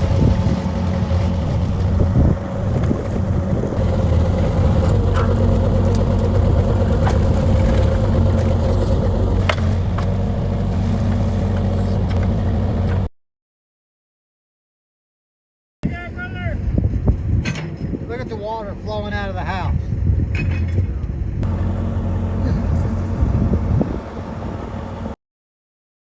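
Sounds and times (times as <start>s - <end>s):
backhoe diesel engine running: 0.0s - 13.1s, 20.6s - 25.2s.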